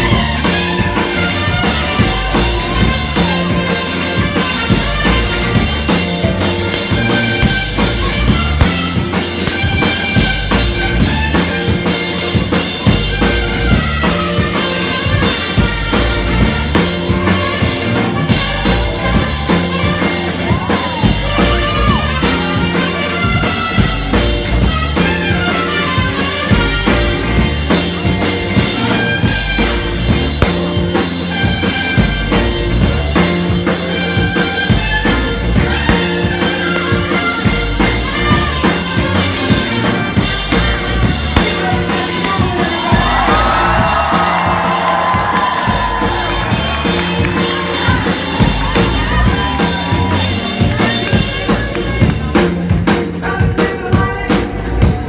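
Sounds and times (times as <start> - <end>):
soul band playing funk: 0.0 - 55.0.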